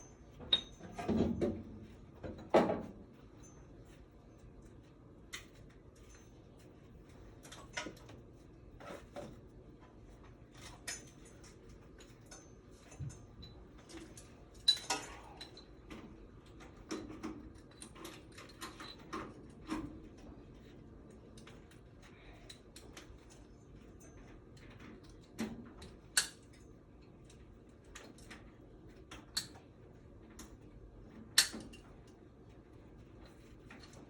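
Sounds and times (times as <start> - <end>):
metallic clinks and knocks of tools: 0.1 - 1.3, 10.6 - 16.1, 16.8 - 19.8.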